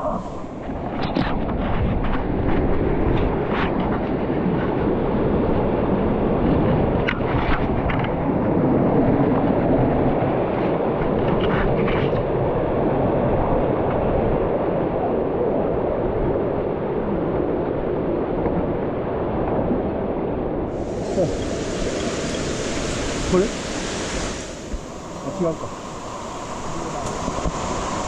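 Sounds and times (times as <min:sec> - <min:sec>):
waterfall roaring: 0:20.7 - 0:28.0.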